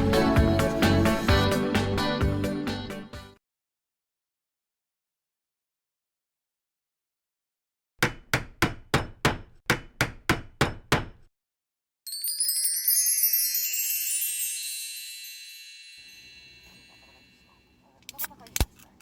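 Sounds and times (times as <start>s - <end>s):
shimmering chime of high tones: 12.1s - 17.8s.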